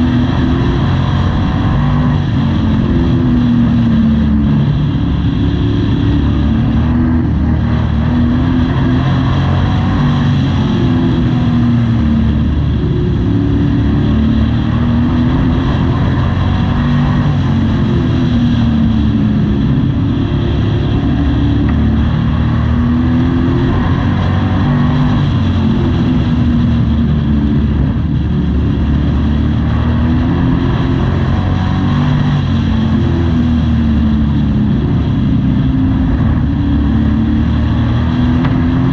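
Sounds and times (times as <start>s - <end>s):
racing truck engine revving: 0.0s - 38.9s.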